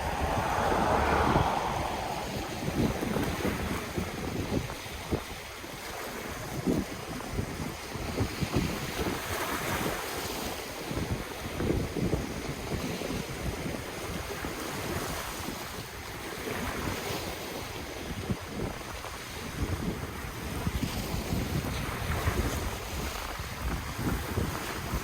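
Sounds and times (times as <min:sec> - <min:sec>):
ocean waves washing onto shore: 0:00.0 - 0:04.8
wind buffeting microphone: 0:00.0 - 0:09.9.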